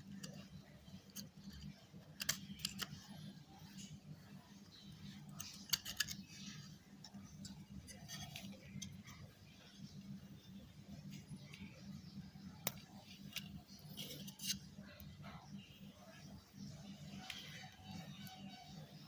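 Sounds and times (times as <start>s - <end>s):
steady low hum: 0.0s - 19.0s
computer mouse clicking: 1.1s - 3.0s.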